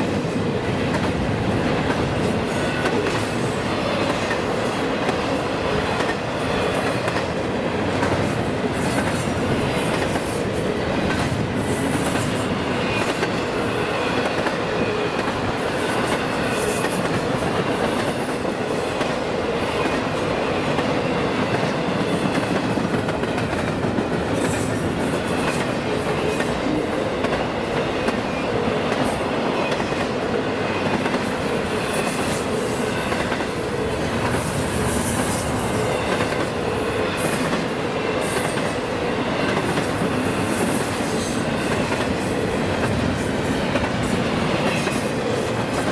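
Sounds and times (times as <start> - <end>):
train cars rolling on track: 0.0 - 45.9.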